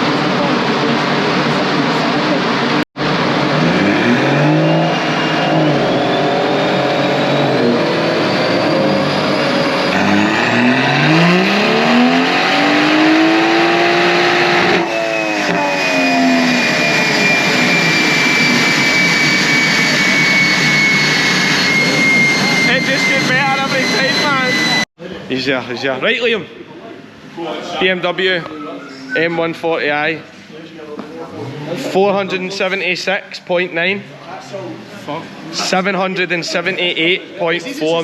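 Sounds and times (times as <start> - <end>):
car engine revving at full throttle: 0.0 - 24.9
high drivetrain whine: 0.0 - 24.9.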